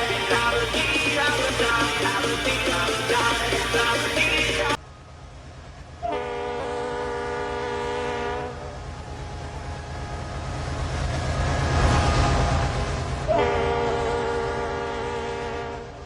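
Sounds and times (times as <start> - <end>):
passing train rumble: 0.0 - 16.0
locomotive horn chord: 6.1 - 8.8, 13.3 - 16.0.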